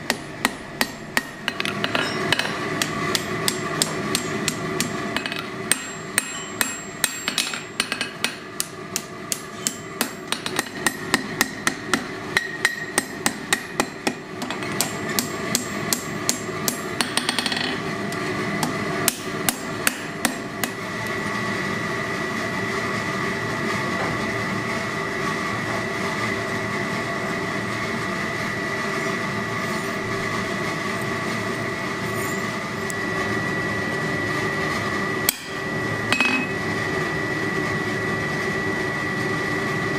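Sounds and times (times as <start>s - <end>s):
hammer striking steel on anvil: 0.0s - 17.8s, 18.6s - 20.8s, 35.3s - 36.6s
steady high-toned hum: 0.0s - 39.9s.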